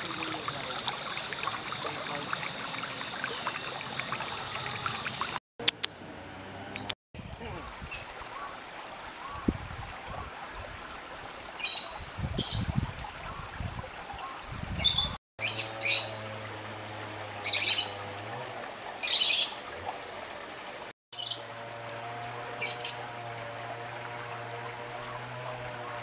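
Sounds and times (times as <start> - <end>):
wild birds chirping and squawking: 7.2 - 10.3, 14.2 - 16.4, 17.4 - 19.7, 21.2 - 26.0.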